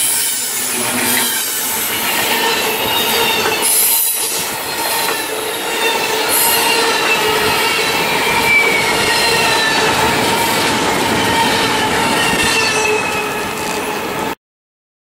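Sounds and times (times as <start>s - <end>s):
steel wheels squealing on rails: 0.0s - 14.4s.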